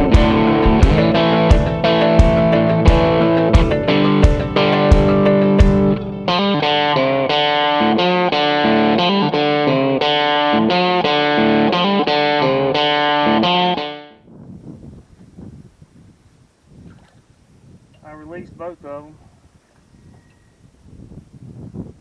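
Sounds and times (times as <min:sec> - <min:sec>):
electric guitar plucked notes: 0:00.0 - 0:14.2.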